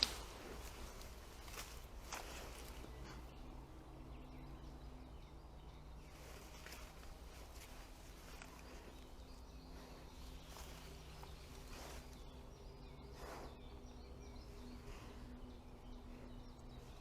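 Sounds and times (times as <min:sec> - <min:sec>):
soft rustles: 0:00.0 - 0:03.3, 0:06.1 - 0:12.5
faint bird chirps: 0:00.0 - 0:17.0.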